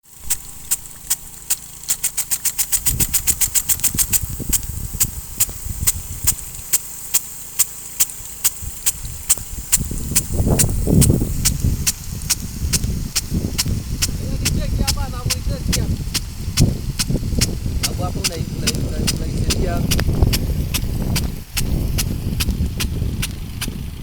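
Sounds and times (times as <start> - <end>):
sprinkler clicking: 0.0 - 24.0
low rumble: 9.0 - 24.0.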